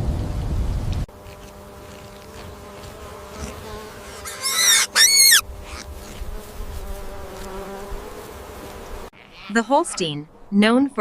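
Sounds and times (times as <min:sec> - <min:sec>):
high-pitched animal calls: 0:04.1 - 0:05.8.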